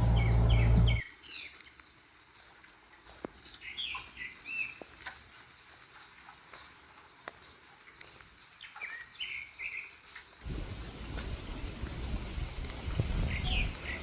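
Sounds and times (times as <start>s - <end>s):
loud low hum: 0.0s - 1.0s
small birds chirping: 0.0s - 14.0s.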